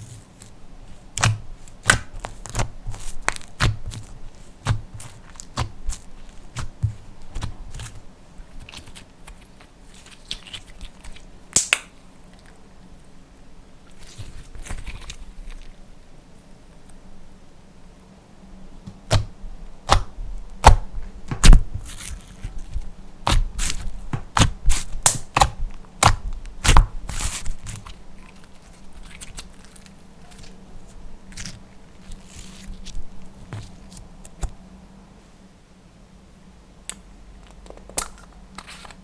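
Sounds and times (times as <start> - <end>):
slime popping and crackling: 0.4 - 8.0, 11.5 - 11.9, 23.3 - 27.9.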